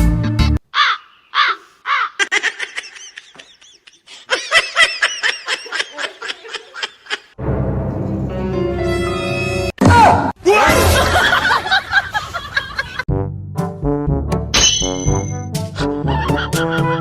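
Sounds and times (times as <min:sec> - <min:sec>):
high-pitched laughter: 0:01.9 - 0:07.4, 0:15.9 - 0:17.0.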